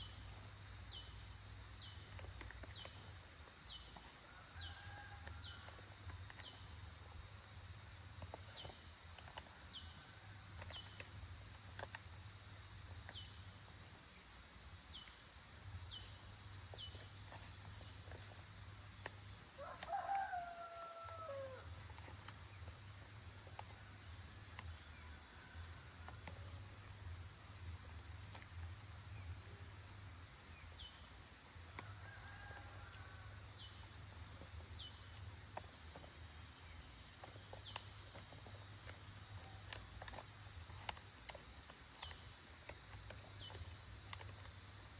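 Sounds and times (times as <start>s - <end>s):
high-pitched insect drone: 0.0s - 44.9s
distant rooster crows: 4.0s - 6.5s, 19.5s - 22.1s, 31.7s - 33.9s
rooster crowing: 4.2s - 5.9s, 19.6s - 21.7s, 31.8s - 33.5s.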